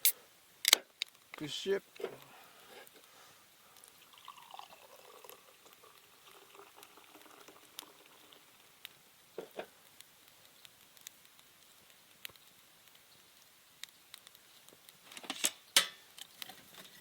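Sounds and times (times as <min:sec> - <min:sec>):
beer pouring and fizzing: 0:03.8 - 0:09.6.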